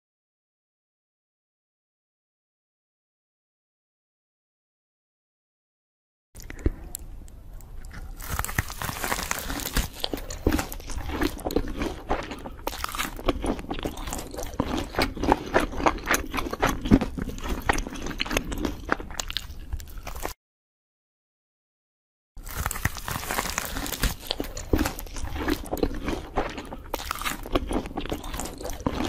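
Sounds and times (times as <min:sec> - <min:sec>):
crunchy fried chicken chewing: 0:07.6 - 0:20.4, 0:22.4 - 0:29.0.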